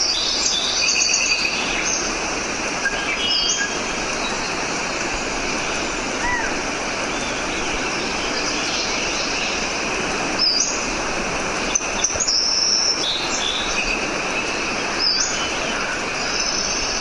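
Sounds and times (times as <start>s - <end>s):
birds singing: 0.0s - 17.0s
flowing water rushing: 0.0s - 17.0s.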